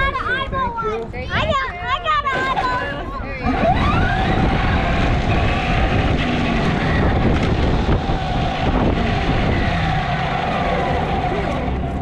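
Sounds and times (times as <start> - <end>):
wind buffeting microphone: 0.0 - 12.0
steady whining tone: 3.2 - 12.0.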